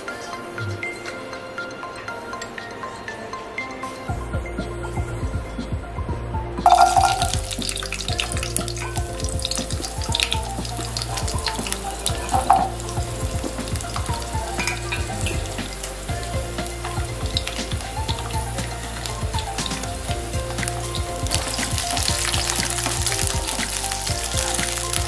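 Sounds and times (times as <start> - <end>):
food sizzling in hot oil: 6.7 - 25.0.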